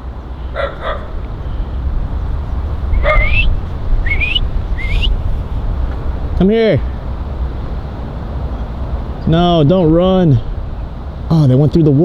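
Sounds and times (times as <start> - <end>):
steady low rumble: 0.0 - 12.0
puppy whimpering: 3.0 - 3.4.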